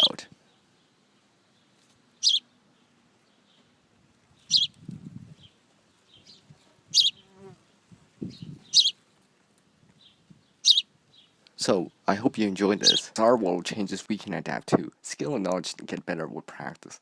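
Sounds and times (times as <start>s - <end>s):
small bird chirping: 0.0s - 9.1s, 9.9s - 11.5s, 12.8s - 13.0s.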